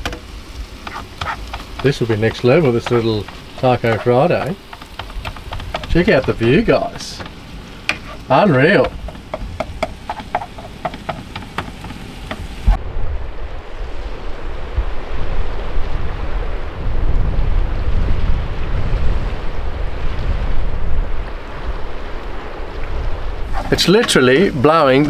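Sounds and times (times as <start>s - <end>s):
sharp clicks and ticks: 0.8s - 8.0s
strong wind on microphone: 12.5s - 25.0s.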